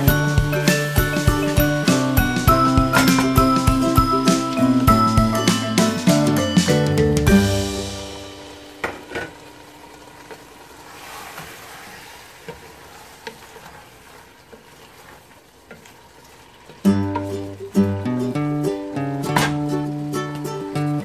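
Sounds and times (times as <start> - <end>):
vegetables sizzling in a pot: 0.0 - 6.4, 7.3 - 21.0
background music: 0.0 - 8.9.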